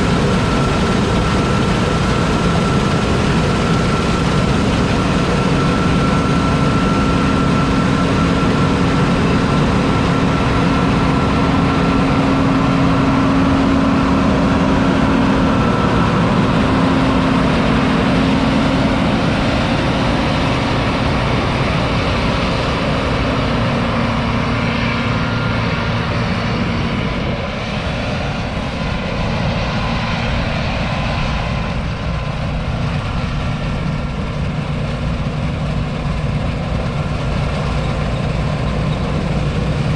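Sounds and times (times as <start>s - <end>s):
machine whine: 0.0s - 23.4s
combine harvester droning: 0.0s - 39.9s.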